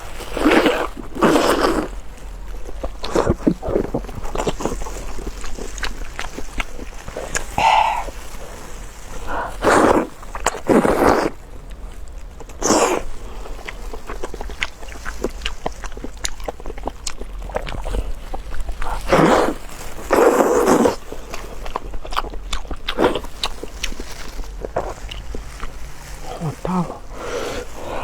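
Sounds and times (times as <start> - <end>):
wet chewing mouth clicks: 12.2 - 28.0
loud mouth noises: 24.7 - 28.0.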